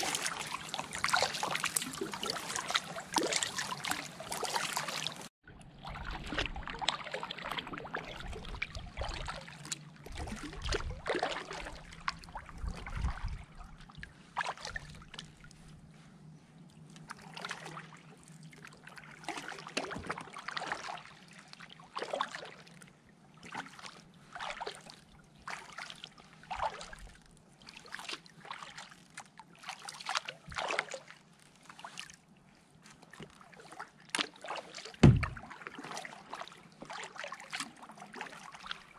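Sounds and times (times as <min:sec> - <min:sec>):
paddle splashing through water: 0:00.0 - 0:15.7, 0:17.0 - 0:22.8, 0:23.4 - 0:38.9.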